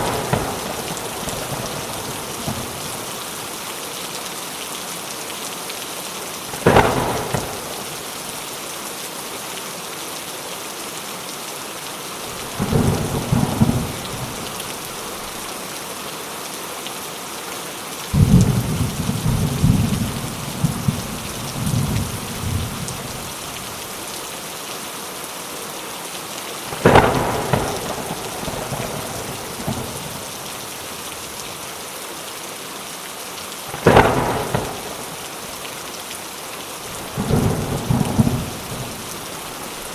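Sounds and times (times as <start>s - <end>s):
sharp thunder cracks: 0.0s - 2.8s, 6.6s - 7.9s, 26.8s - 30.2s, 33.7s - 35.3s, 37.0s - 39.1s
rolling thunder rumble: 0.0s - 3.0s, 6.6s - 7.9s, 12.4s - 14.6s, 18.2s - 23.3s, 26.8s - 30.4s, 33.7s - 35.3s, 36.9s - 39.1s
heavy rain: 0.0s - 39.9s.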